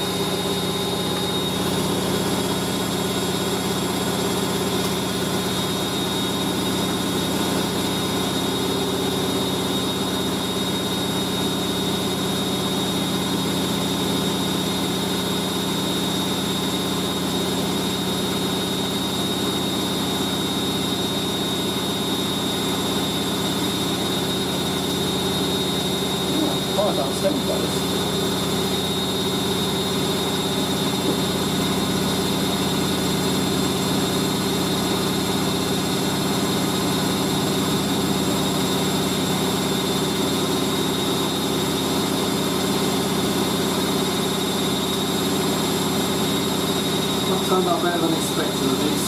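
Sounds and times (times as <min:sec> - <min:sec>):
washing machine spinning: 0:00.0 - 0:49.0.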